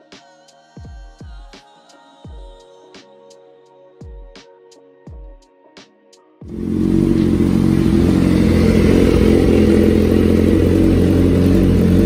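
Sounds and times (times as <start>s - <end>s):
motorcycle engine running loud: 6.5s - 12.0s.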